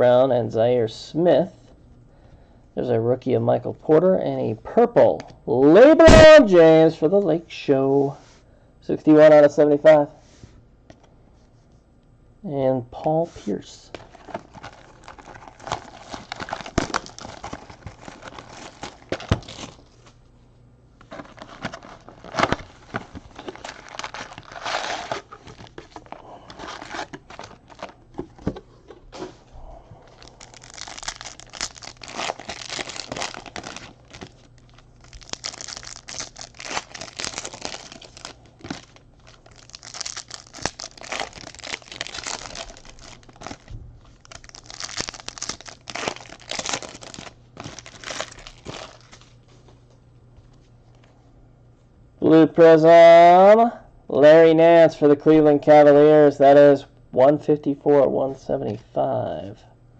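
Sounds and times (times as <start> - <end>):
foil wrappers crinkling and tearing: 13.9 - 20.1, 21.0 - 28.6, 30.1 - 49.4.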